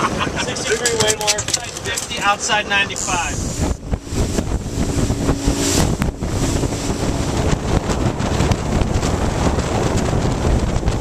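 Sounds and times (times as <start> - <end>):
boat engine humming: 0.0 - 11.0
wind noise on microphone: 0.0 - 11.0.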